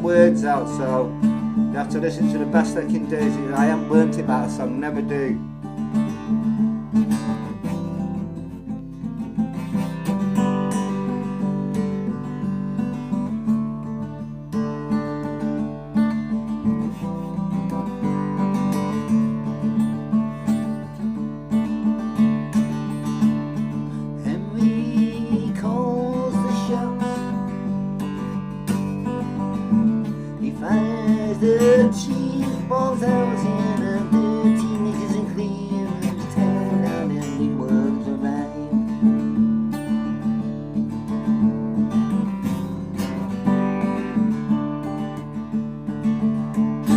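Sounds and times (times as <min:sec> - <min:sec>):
person singing wordless line: 0:00.0 - 0:05.6, 0:23.9 - 0:27.7, 0:30.0 - 0:39.2
acoustic guitar strumming: 0:00.0 - 0:46.9.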